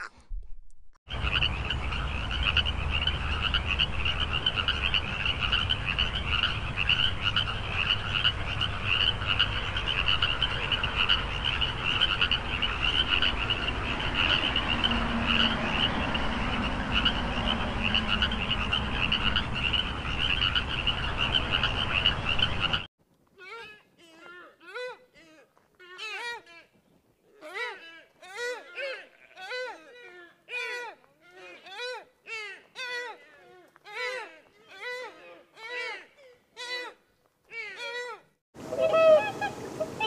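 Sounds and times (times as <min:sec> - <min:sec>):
frogs croaking: 0:01.1 - 0:22.9.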